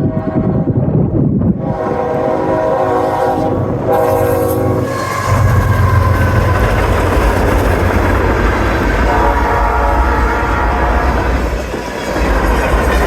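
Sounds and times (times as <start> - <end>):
train wheels on rails: 0.0 - 13.0
locomotive air horn blasts: 1.6 - 11.4
locomotive engine rumble: 1.7 - 13.0.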